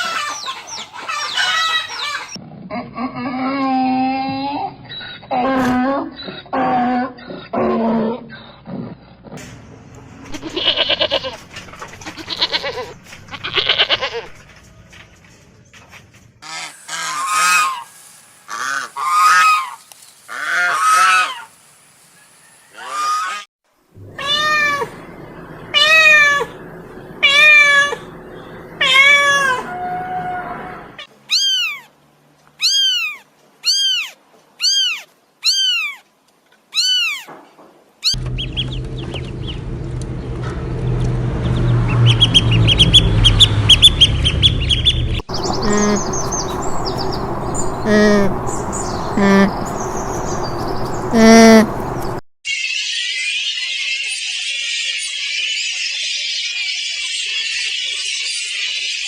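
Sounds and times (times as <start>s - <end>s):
farm and pet animal calls: 0.0s - 9.2s, 10.3s - 14.5s, 16.4s - 21.5s, 22.5s - 31.9s, 32.6s - 36.1s, 36.7s - 39.6s, 42.0s - 52.2s.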